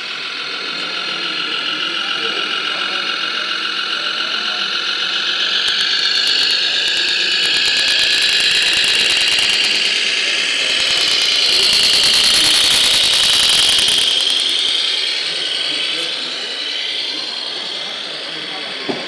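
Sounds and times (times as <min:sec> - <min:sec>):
electric motor whine: 0:00.0 - 0:19.0
fast clicking: 0:00.0 - 0:19.0.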